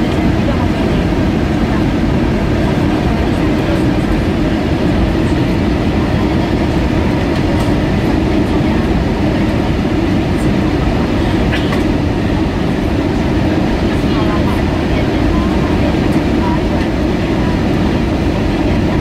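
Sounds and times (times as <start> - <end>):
aircraft cabin roar: 0.0 - 19.0.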